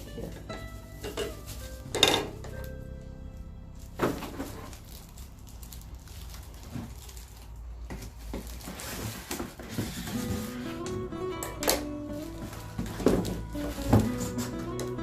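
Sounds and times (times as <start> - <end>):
paper rustling and tapping: 6.6 - 15.0.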